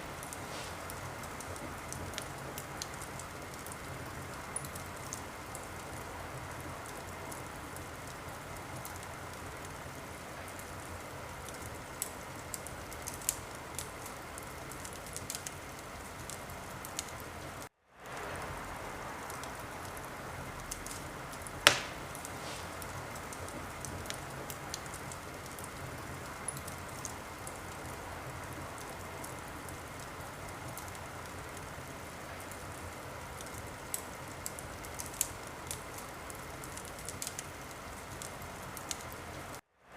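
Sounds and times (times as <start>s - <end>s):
wood fire hissing and crackling: 0.0s - 39.9s
loud sharp pop of fire: 21.6s - 23.0s.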